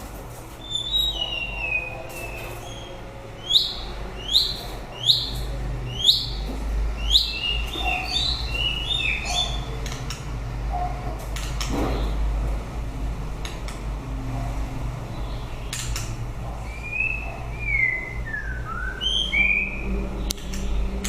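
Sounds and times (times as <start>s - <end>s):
bird singing whistled phrases: 16.7s - 19.9s.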